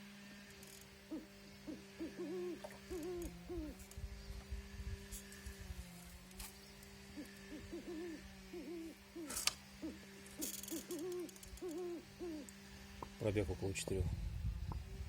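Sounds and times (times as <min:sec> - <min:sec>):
steady low hum: 0:00.0 - 0:15.0
bird cooing: 0:01.0 - 0:03.9, 0:07.0 - 0:12.6.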